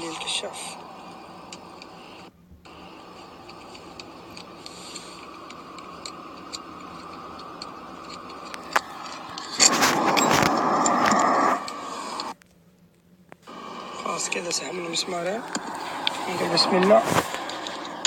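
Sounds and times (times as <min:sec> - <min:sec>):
steady low hiss: 0:00.0 - 0:18.0
rush of noise: 0:00.1 - 0:12.4, 0:13.5 - 0:18.0
wrench clicking: 0:03.4 - 0:09.6.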